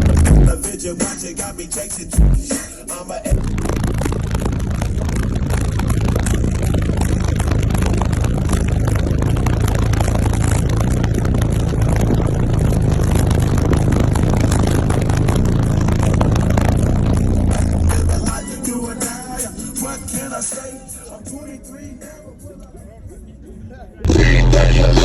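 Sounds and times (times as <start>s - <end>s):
rough buffeting rush: 0.0s - 18.4s
deep bass tone from subwoofers: 0.0s - 20.8s, 24.0s - 25.0s.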